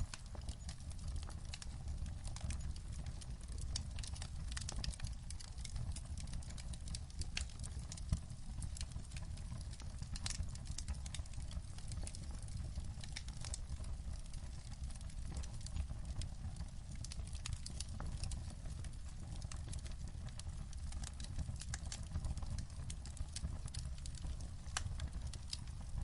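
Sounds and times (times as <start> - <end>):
low steady rumble: 0.0 - 2.5
fire pops and snaps: 0.0 - 26.0
wood fire crackling: 0.0 - 26.0.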